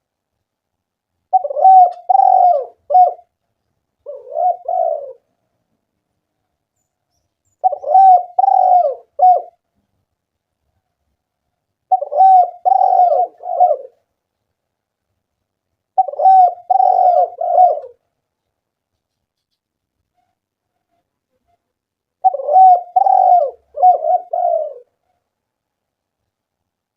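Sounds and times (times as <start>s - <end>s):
dove cooing: 1.3s - 3.3s, 4.0s - 5.3s, 7.6s - 9.6s, 11.9s - 14.1s, 16.0s - 18.0s, 22.2s - 25.0s.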